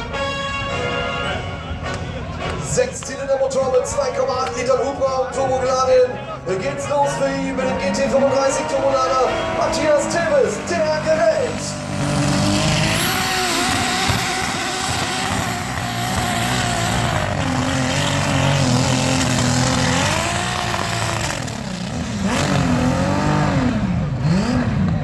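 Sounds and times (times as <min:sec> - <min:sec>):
tractor engine running hard: 0:09.2 - 0:25.0.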